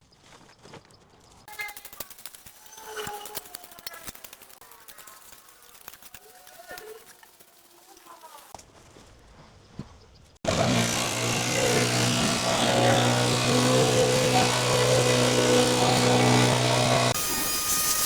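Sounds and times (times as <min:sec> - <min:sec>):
small engine running: 0:10.4 - 0:18.0.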